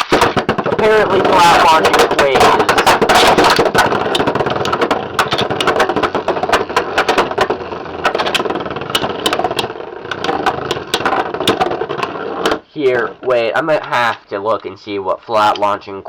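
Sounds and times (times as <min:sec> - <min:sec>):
spinning tops whirring: 0:00.0 - 0:13.2.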